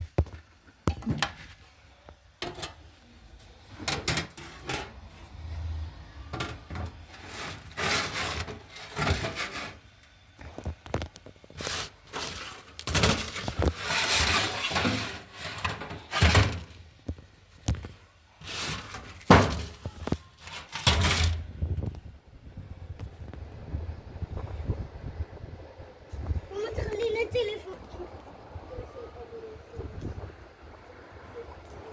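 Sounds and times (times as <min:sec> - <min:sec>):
objects knocking and thudding: 0:00.0 - 0:01.5, 0:18.7 - 0:21.5
scraping: 0:03.4 - 0:09.8, 0:11.5 - 0:16.8, 0:18.4 - 0:21.5.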